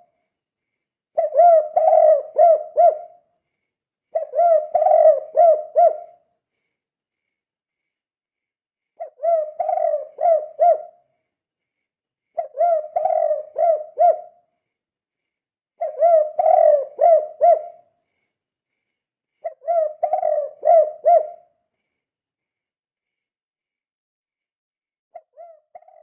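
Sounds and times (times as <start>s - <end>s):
dove cooing: 1.2s - 3.2s, 4.1s - 6.2s, 9.0s - 11.0s, 12.4s - 14.4s, 15.8s - 17.8s, 19.4s - 21.4s, 25.2s - 26.0s.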